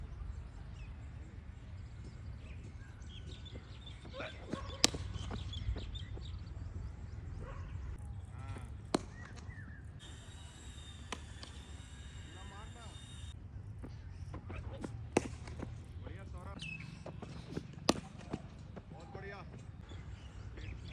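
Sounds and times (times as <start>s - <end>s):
cricket bat striking ball: 4.0s - 6.4s, 8.5s - 13.1s, 13.8s - 19.3s.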